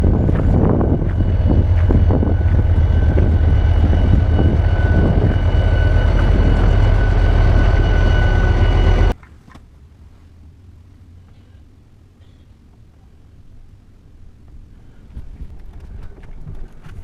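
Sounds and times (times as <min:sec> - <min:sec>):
train rumbling and rattling: 0:00.0 - 0:09.2.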